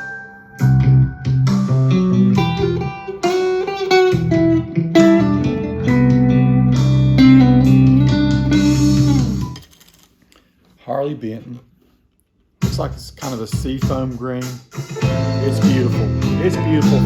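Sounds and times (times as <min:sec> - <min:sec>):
electric guitar blues licks: 0:00.6 - 0:09.5, 0:15.0 - 0:17.0.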